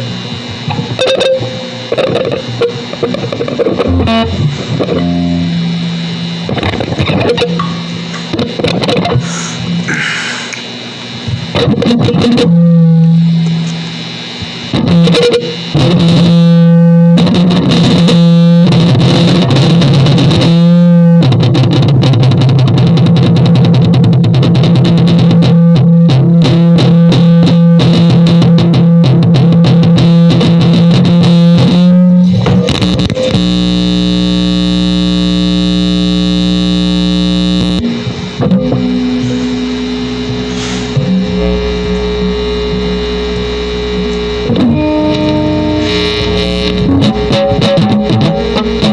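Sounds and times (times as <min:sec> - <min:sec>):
distorted guitar drone: 0:00.0 - 0:48.9
dense held chord: 0:03.8 - 0:10.3, 0:36.0 - 0:48.9.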